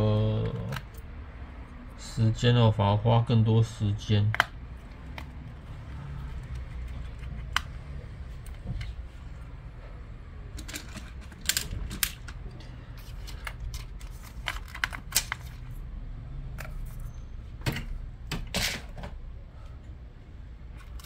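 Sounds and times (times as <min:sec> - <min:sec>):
plastic laptop parts clicking: 0:04.3 - 0:05.4, 0:06.2 - 0:07.8, 0:10.6 - 0:15.6.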